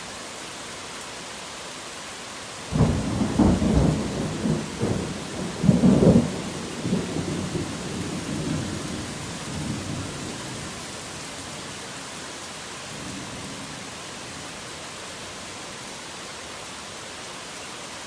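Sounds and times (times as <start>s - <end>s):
steady rain: 0.0s - 18.0s
thunder rumbling: 2.7s - 10.7s.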